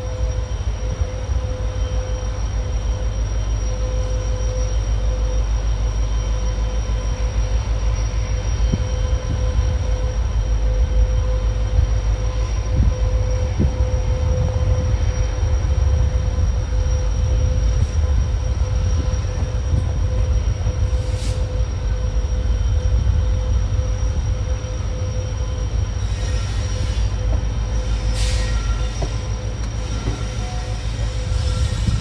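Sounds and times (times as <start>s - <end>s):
train low rumble: 0.0s - 32.0s.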